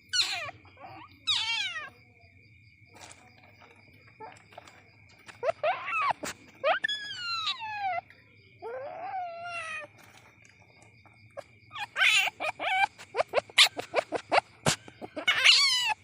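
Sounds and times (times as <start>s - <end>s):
palm civet whining calls: 5.4s - 9.9s, 11.7s - 16.0s.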